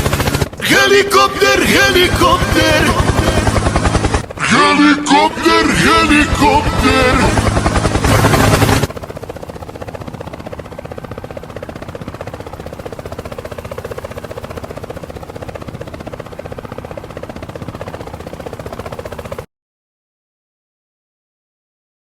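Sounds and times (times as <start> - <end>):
helicopter rotor blades beating: 0.0 - 19.5
chanted song: 0.6 - 8.8.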